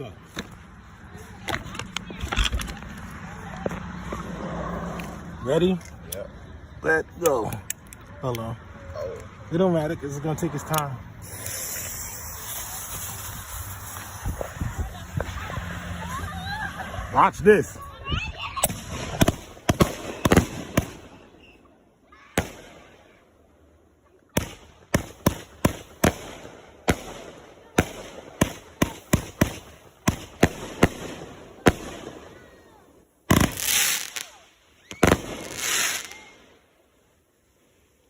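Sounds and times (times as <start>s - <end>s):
noisy firework bursts: 11.1s - 17.1s, 18.5s - 23.6s, 24.3s - 38.0s
fireworks cake firing shots: 11.2s - 15.6s, 18.6s - 21.4s, 22.3s - 23.2s, 24.3s - 32.6s, 33.3s - 36.4s.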